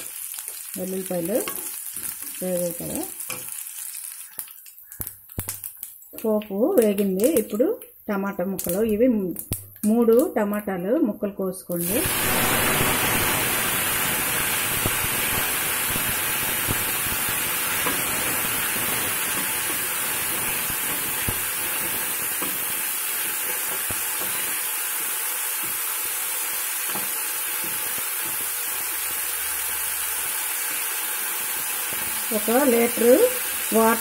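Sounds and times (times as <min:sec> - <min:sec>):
tomatoes sizzling in hot oil: 0:00.0 - 0:10.9, 0:11.6 - 0:34.0.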